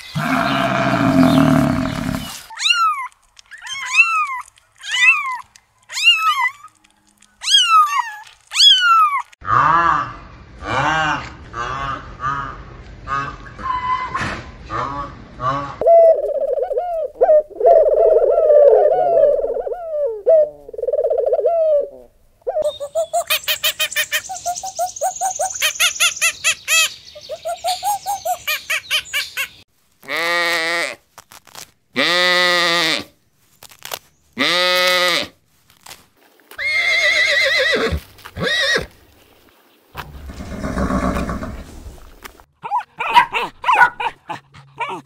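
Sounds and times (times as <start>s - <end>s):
long animal calls: 0.1s - 3.0s
pigeons cooing: 15.8s - 22.7s
horse whinnying: 36.6s - 38.9s, 40.2s - 41.7s.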